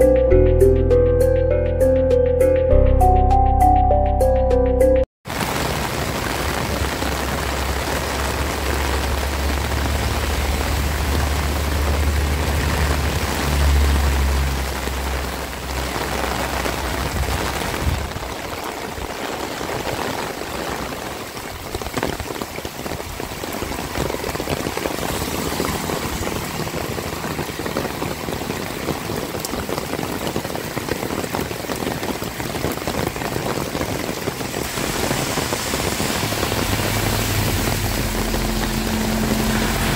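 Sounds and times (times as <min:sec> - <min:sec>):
heavy rain pouring: 0:05.2 - 0:39.9
deep low rumble: 0:34.6 - 0:39.9.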